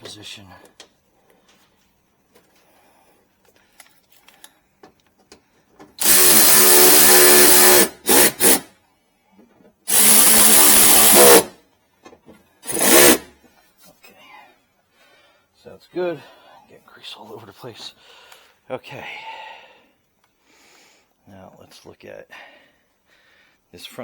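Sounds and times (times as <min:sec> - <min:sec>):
cordless drill whining: 0:06.0 - 0:08.7, 0:09.9 - 0:11.5, 0:12.6 - 0:13.2.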